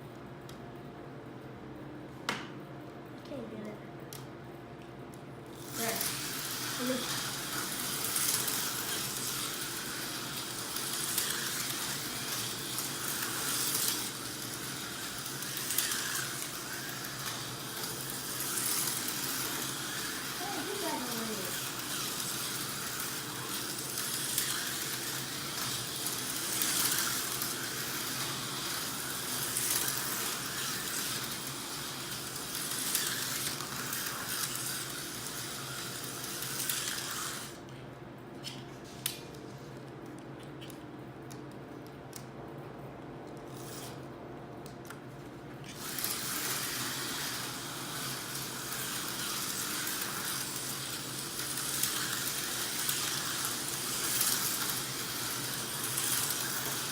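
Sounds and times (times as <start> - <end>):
slot cars hissing and whirring: 5.5 - 37.6, 45.7 - 56.9.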